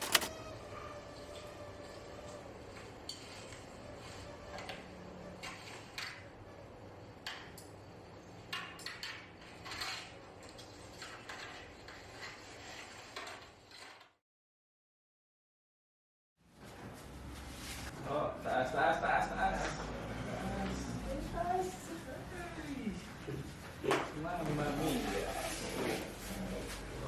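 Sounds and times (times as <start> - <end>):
objects clicking and knocking: 0.0 - 0.3.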